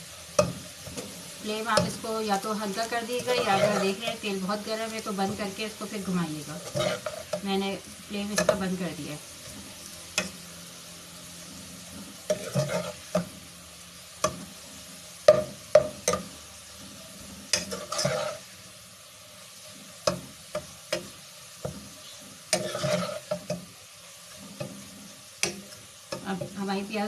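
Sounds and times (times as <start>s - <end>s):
onions sizzling in oil: 0.0s - 27.0s
spoon scraping a pan: 0.4s - 8.8s, 9.4s - 10.5s, 11.8s - 13.3s, 15.3s - 18.5s, 19.5s - 26.6s.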